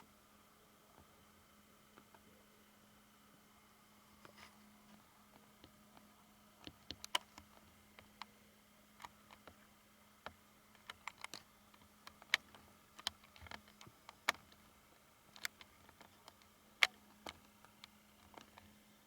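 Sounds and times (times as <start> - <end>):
faint steady hum: 0.0 - 19.0
sharp clicks and ticks: 10.3 - 14.7, 15.3 - 18.7.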